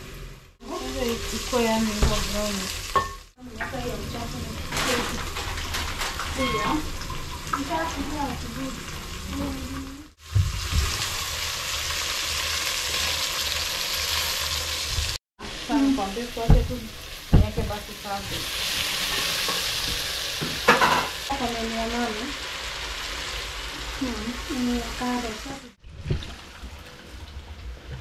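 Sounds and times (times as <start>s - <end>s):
onions sizzling in oil: 0.0s - 25.8s
utensils knocking against pot: 19.1s - 21.2s.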